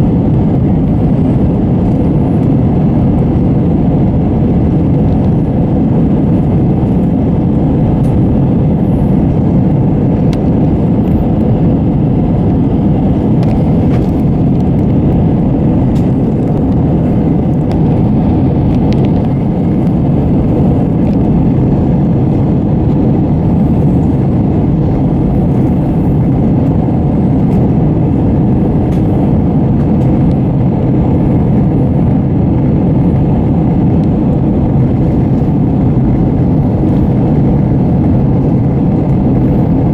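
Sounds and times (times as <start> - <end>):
jet engine roar in cabin: 0.0 - 39.9.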